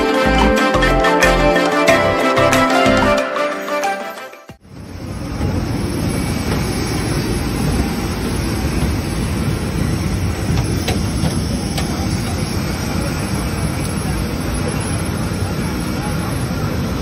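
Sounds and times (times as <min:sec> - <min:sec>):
music: 0:00.0 - 0:04.6
moving vehicle rumble and hiss: 0:04.6 - 0:17.0.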